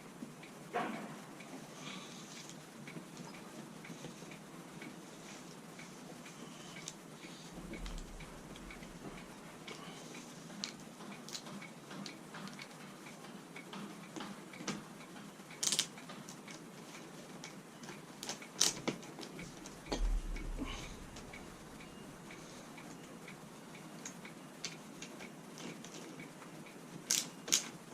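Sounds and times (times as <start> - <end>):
sharp knock: 19.9 - 21.4.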